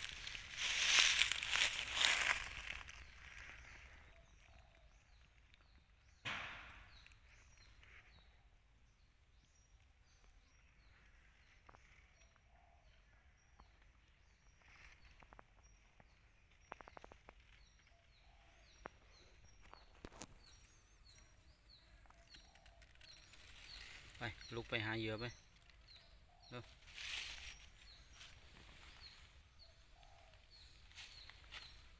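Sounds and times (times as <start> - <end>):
crunch of dry leaves: 0.0 - 5.7, 19.4 - 31.9.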